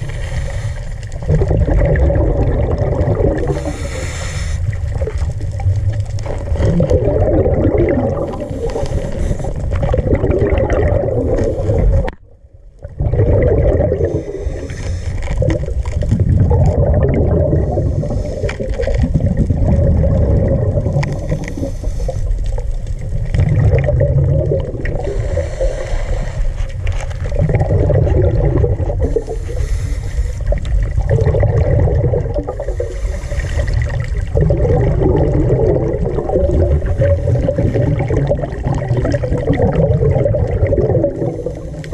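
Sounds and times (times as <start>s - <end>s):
water gurgling and rushing: 0.0s - 41.9s.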